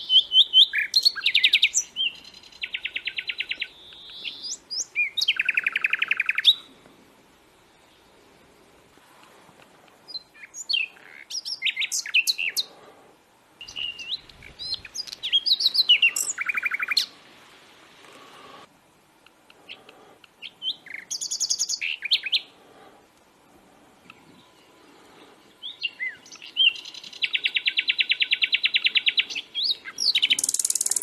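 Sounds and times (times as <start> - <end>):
bird chirps and trills: 13.6 - 17.1, 20.4 - 22.5, 24.0 - 31.0.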